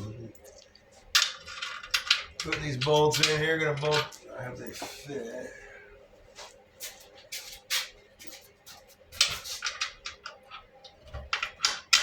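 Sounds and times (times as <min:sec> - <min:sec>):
bolts clicking and scraping: 0:01.2 - 0:04.9, 0:09.2 - 0:12.0.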